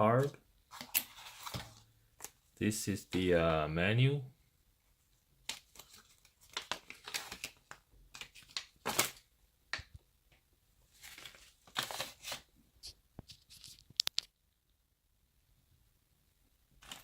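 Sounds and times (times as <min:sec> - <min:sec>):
paper and cardboard rustling: 0:00.2 - 0:02.4, 0:05.4 - 0:09.2, 0:10.9 - 0:14.0, 0:16.8 - 0:17.0.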